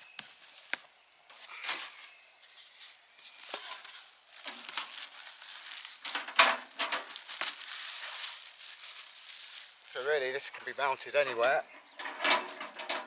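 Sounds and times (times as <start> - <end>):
rustling: 3.2 - 10.4.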